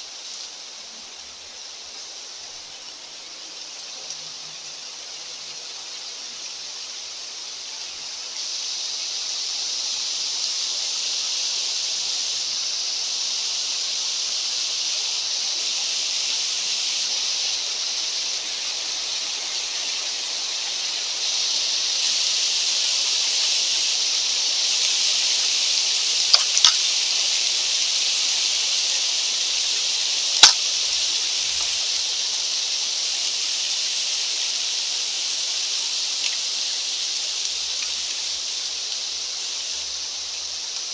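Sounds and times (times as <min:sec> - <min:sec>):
wind hissing: 0:23.6 - 0:40.7
sharp clicks: 0:26.3 - 0:26.9.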